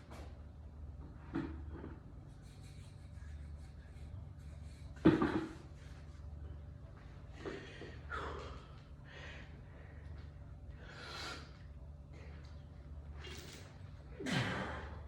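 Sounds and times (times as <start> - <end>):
person breathing hard: 7.5 - 11.5.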